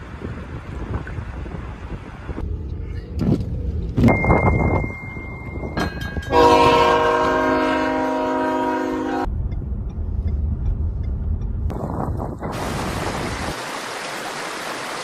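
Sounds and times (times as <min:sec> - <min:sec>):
low rumble: 0:00.1 - 0:06.3, 0:09.2 - 0:12.7
loud horn blast: 0:06.3 - 0:09.3.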